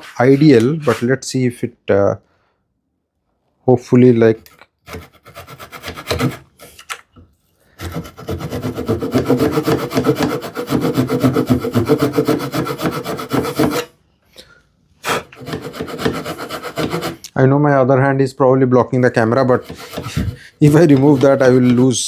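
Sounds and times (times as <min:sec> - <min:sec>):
hand saw cutting wood: 0:04.9 - 0:06.8, 0:07.8 - 0:13.9, 0:15.1 - 0:17.2, 0:19.2 - 0:22.0.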